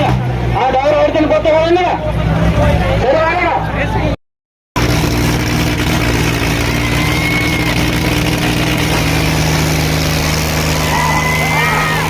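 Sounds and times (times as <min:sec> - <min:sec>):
diesel tractor engine running: 0:04.8 - 0:12.0.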